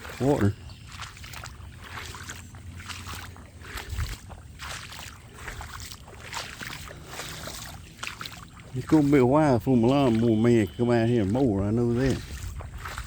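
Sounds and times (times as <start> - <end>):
footsteps splashing through water: 0.0 - 13.0
steady low rumble: 0.0 - 13.0.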